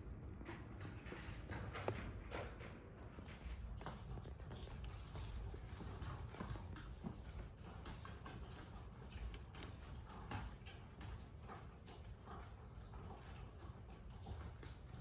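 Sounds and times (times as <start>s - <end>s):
light rustling: 0.0s - 7.4s.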